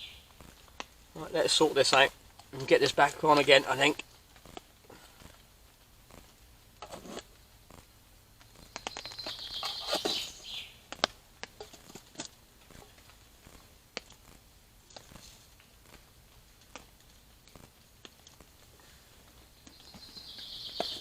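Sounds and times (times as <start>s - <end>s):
scraping rustle: 6.8s - 7.8s, 9.1s - 10.5s, 11.6s - 16.0s.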